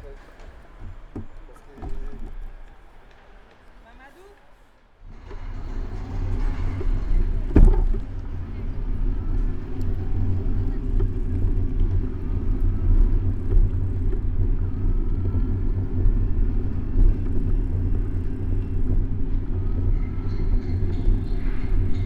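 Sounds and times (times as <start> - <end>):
traffic: 0.0 - 22.0
wind and road noise: 5.0 - 22.0.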